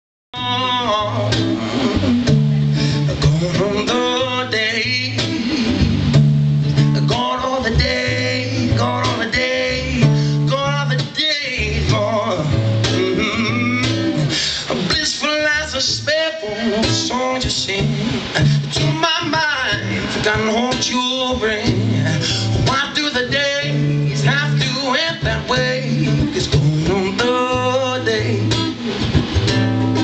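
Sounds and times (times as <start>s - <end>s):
person singing: 0.4s - 6.2s, 6.9s - 28.9s
strummed acoustic guitar: 0.4s - 30.0s.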